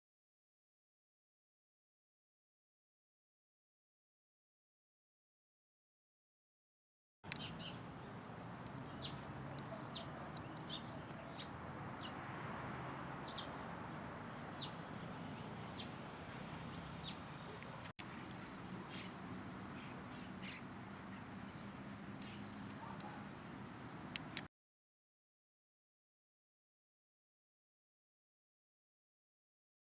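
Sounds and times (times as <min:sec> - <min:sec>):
bird chirping: 0:07.3 - 0:23.3.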